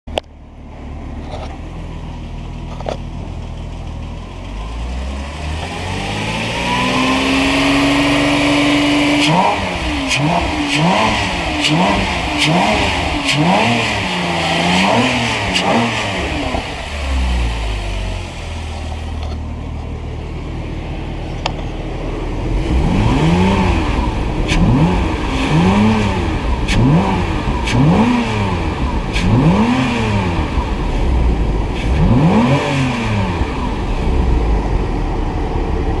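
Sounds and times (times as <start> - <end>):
car engine idling: 0.1 - 36.0
engine revving in throttle blips: 4.5 - 19.2, 22.1 - 36.0.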